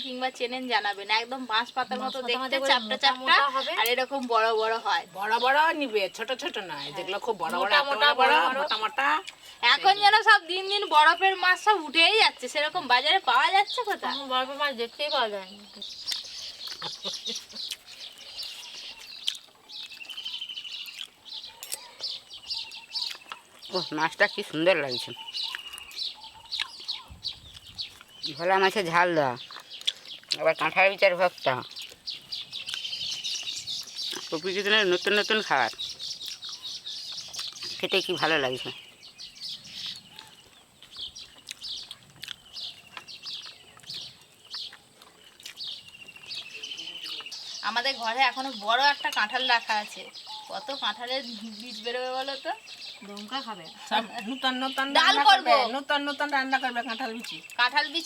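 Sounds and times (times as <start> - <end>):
birds chirping: 0.0 - 58.0
bird trills: 15.5 - 28.4, 31.5 - 55.3.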